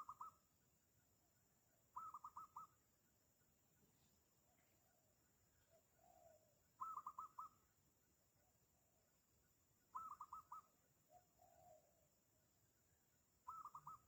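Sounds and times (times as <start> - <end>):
dove cooing: 0.0 - 0.4, 2.0 - 2.7, 5.7 - 7.6, 9.9 - 12.0, 13.5 - 14.0.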